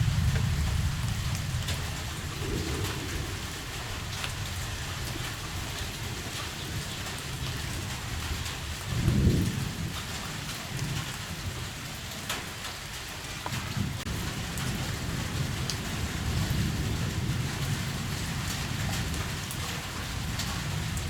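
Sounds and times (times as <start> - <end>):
low rumble: 0.0 - 5.2
heavy rain: 0.0 - 21.0.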